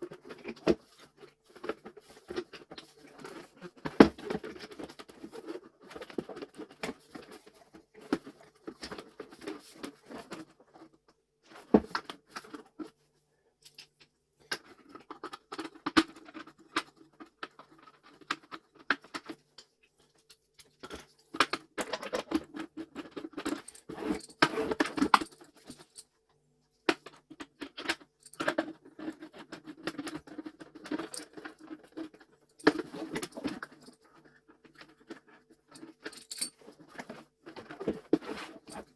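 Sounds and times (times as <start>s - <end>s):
plastic parts clicking and rattling: 20.6s - 26.0s, 27.0s - 38.9s.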